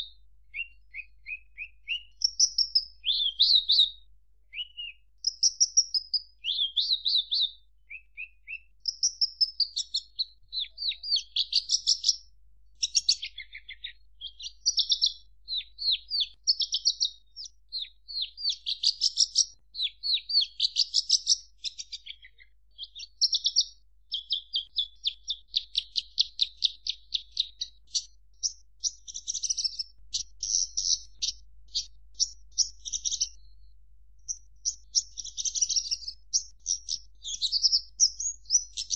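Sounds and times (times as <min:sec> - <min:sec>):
lark singing: 0:00.0 - 0:33.6, 0:34.3 - 0:38.9.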